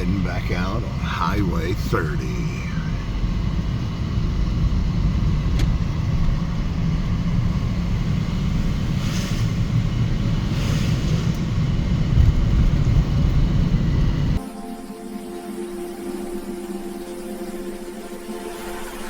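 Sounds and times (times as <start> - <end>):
vehicle driving rumble: 0.0 - 14.4.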